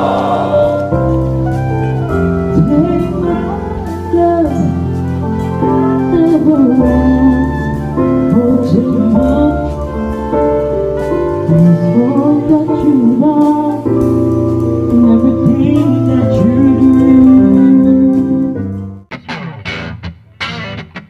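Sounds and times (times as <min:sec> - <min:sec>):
music with singing voice: 0:00.0 - 0:20.8.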